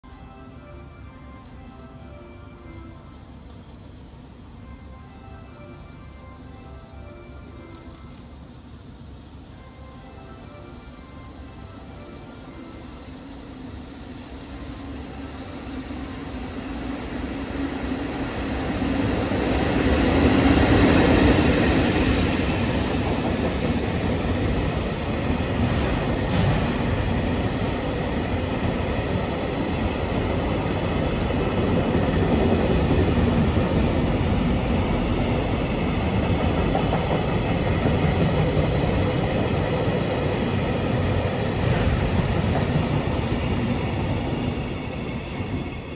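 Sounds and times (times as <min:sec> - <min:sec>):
freight train passing: 0:00.0 - 0:45.9.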